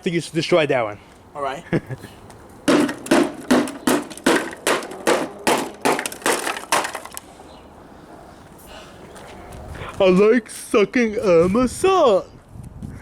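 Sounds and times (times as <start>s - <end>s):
hammer smashing a speaker: 2.7s - 7.2s.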